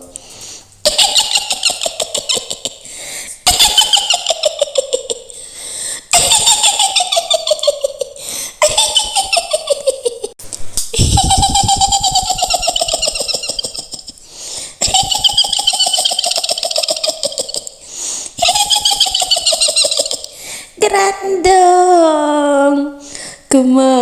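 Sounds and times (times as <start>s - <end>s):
woman cackling: 6.1s - 10.4s, 11.0s - 14.2s, 14.8s - 17.8s, 18.4s - 20.4s.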